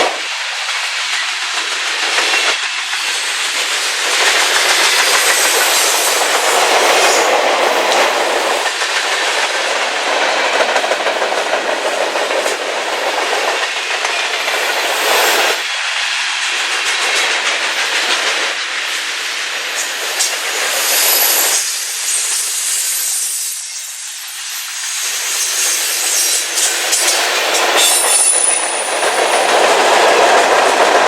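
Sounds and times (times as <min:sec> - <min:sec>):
train cars rolling on rails: 0:00.0 - 0:31.0.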